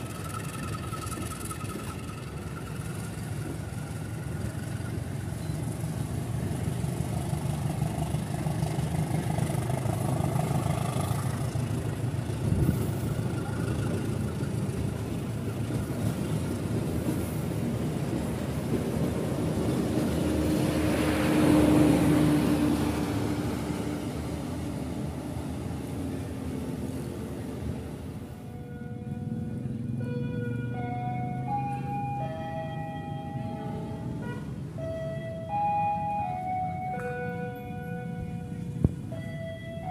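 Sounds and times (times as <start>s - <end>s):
vehicle passing: 0.0s - 16.4s, 19.0s - 28.4s
traffic rumble: 0.0s - 39.9s.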